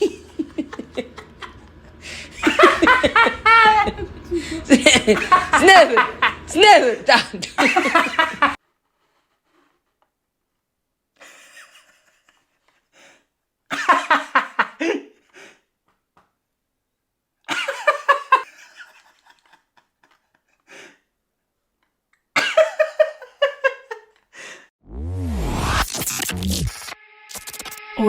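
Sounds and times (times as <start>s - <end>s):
person laughing: 0.0s - 8.6s, 11.2s - 12.8s, 17.5s - 20.9s, 22.4s - 24.6s.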